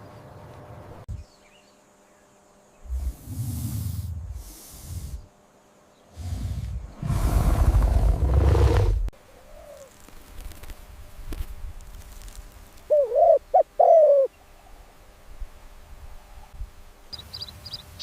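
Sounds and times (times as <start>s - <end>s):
bird calling: 12.9s - 14.5s.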